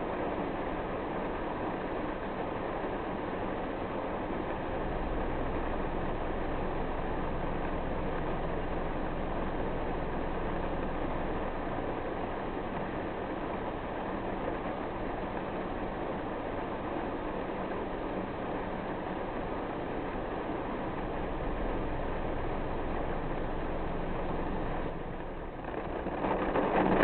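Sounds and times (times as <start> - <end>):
rain hissing: 3.3 - 27.0
low rumble: 4.5 - 14.6, 18.8 - 27.0.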